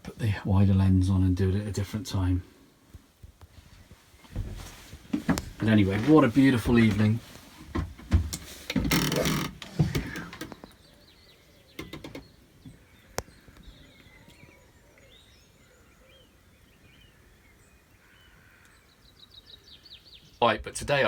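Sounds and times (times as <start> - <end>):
knocks and thuds: 4.3 - 6.1, 7.7 - 10.6
faint bird chirps: 10.0 - 20.6.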